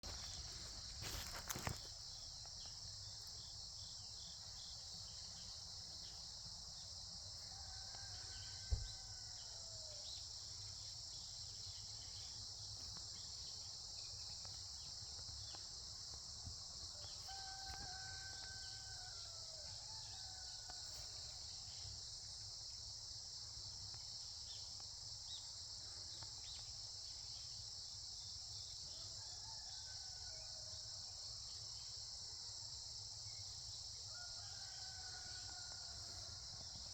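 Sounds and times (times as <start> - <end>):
crickets chirping: 0.0 - 36.9
rooster crowing faintly: 7.4 - 10.1, 17.0 - 21.2.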